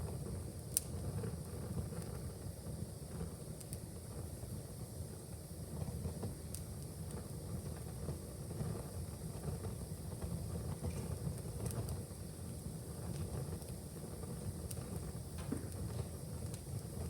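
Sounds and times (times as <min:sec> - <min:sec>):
fire flames rumbling: 0:00.0 - 0:17.0
wood fire crackles: 0:00.0 - 0:17.0.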